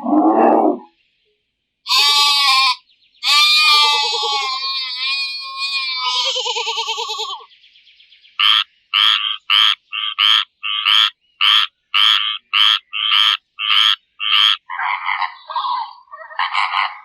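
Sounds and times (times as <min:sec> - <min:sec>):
frog croaking: 0:08.4 - 0:17.0.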